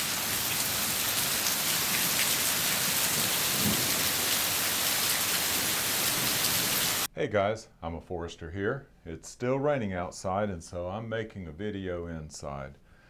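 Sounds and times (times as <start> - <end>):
heavy rain on pavement: 0.0 - 7.1.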